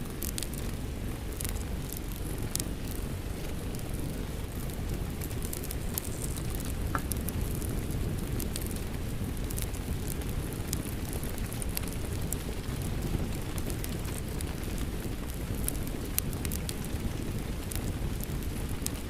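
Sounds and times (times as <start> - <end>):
steady rain: 0.0 - 19.0
wood fire crackling: 0.0 - 19.0.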